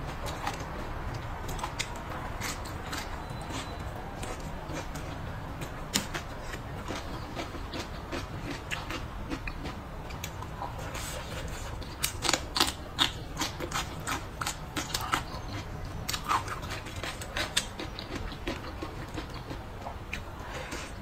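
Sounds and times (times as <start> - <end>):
person chewing food: 0.0 - 21.0.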